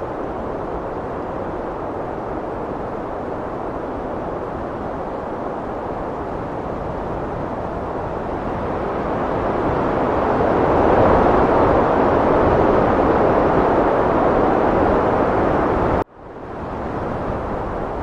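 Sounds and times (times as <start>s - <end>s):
heavy wind blowing: 0.0s - 18.0s.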